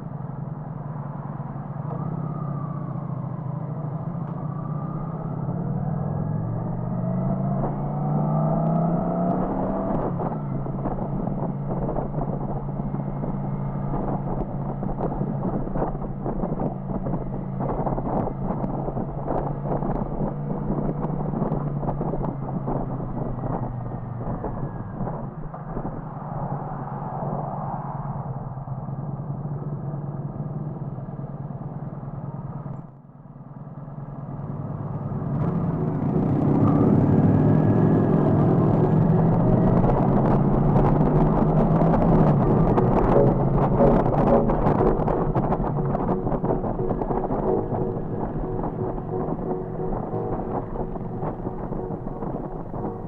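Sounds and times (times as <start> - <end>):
road and wind noise: 0.0 - 53.0
motorcycle engine running: 34.1 - 53.0
wind rush: 35.0 - 53.0.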